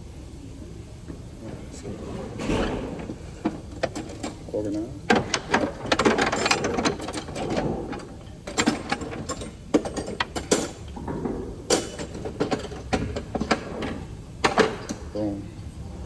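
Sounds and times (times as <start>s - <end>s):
tools clicking and knocking: 3.0s - 15.0s.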